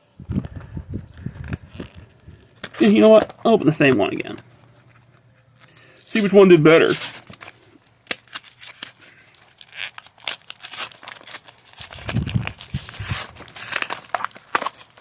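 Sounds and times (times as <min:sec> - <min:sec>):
packaging torn and crinkled: 0:00.4 - 0:03.4, 0:06.2 - 0:15.0.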